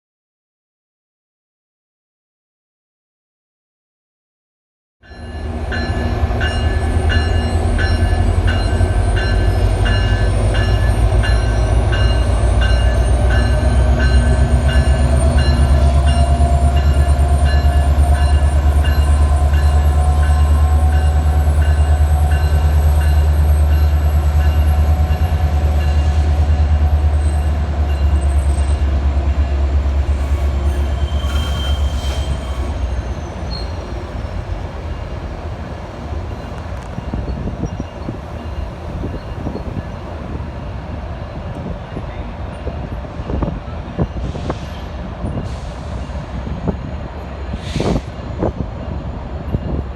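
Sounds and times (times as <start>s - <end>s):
train bell ringing: 5.0s - 29.7s, 36.3s - 46.3s, 48.8s - 49.9s
diesel locomotive rumbling: 5.1s - 49.9s
faint high wheel squeal: 30.2s - 34.1s.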